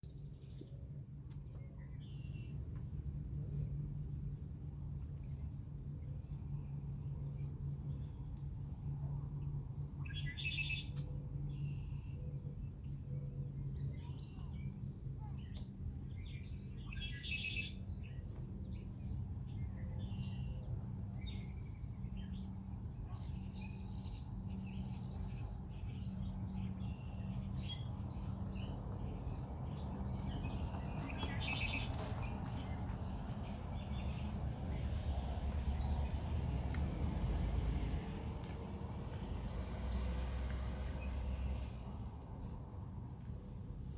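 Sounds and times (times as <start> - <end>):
blackbirds buzzy trilled songs: 0.0 - 43.9
steady low hum: 0.0 - 43.9.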